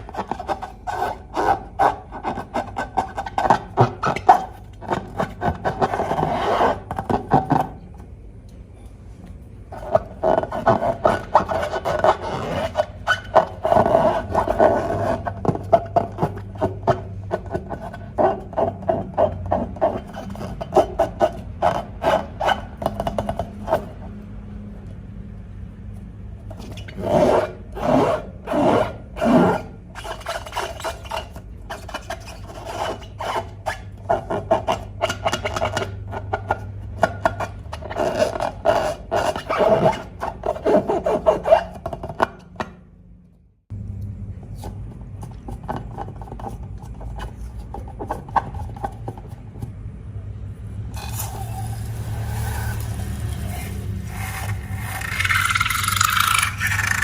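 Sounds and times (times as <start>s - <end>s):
loud slime squelches: 50.9s - 57.0s.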